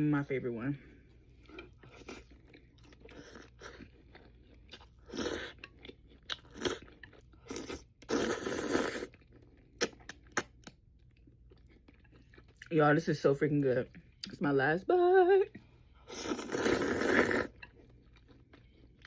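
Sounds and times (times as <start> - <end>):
crunchy chewing of fried food: 0.8 - 12.7, 15.6 - 19.0.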